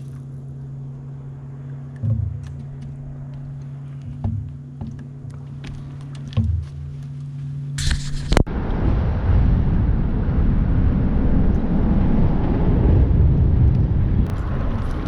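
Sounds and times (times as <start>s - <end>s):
wind buffeting microphone: 0.0s - 7.0s, 7.8s - 15.0s
boat motor humming: 0.0s - 8.5s, 10.9s - 15.0s
water noise: 0.0s - 15.0s
short hiss: 7.8s - 8.4s.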